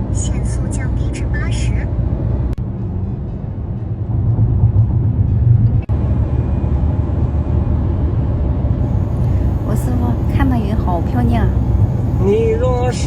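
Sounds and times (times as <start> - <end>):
tyre and engine rumble: 5.6 - 13.0.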